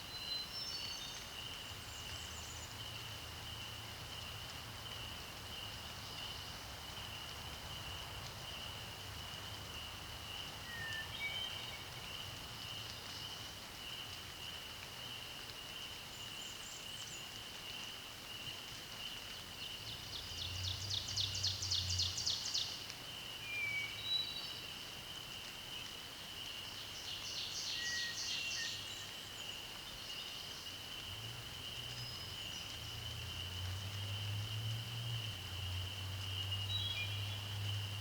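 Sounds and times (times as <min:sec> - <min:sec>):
chorus of frogs or insects: 0:29.1 - 0:38.0.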